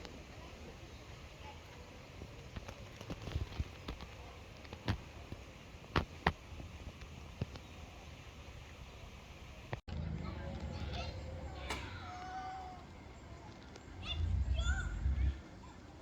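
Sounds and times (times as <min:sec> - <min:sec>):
low background rumble: 0:07.9 - 0:15.8.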